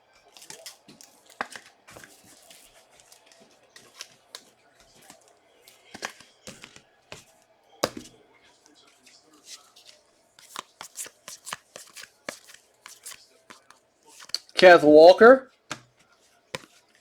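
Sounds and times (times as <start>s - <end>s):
wrappers crinkling and tearing: 0.2s - 4.3s.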